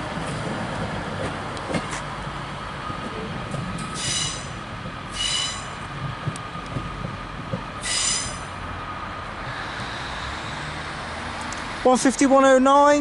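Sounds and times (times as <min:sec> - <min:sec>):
diesel train rumble: 0:00.0 - 0:13.0
high-pitched wheel squeals: 0:03.9 - 0:05.8, 0:07.8 - 0:08.5.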